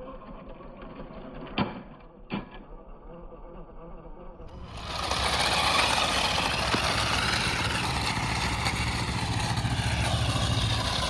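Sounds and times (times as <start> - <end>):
low hum: 4.1 - 11.0
vehicle engine running: 4.4 - 11.0.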